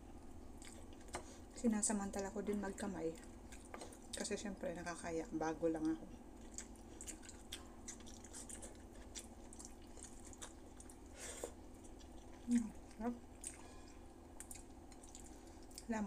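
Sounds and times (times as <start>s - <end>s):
person chewing wetly: 0.5s - 1.6s, 3.1s - 4.3s, 5.8s - 15.9s.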